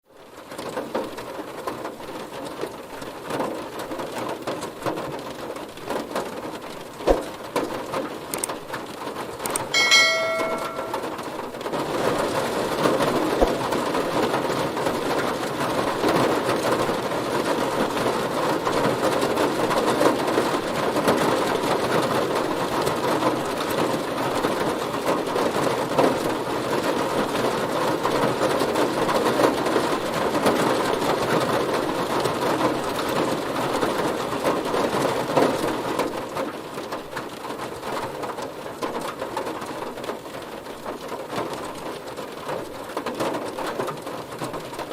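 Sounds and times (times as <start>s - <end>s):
heavy rain drumming on a car: 0.1s - 9.8s, 11.2s - 44.9s
short ringing tone: 9.8s - 11.3s.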